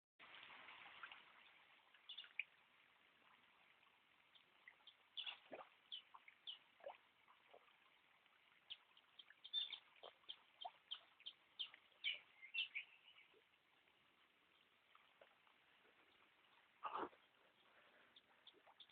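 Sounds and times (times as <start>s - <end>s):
birds chirping and whistling: 9.4s - 13.3s.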